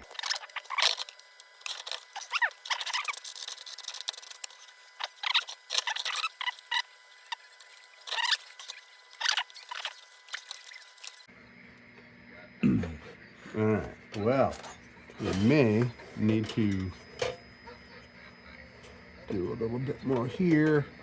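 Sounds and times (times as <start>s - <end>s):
metallic clicks and scrapes: 0.0s - 11.3s.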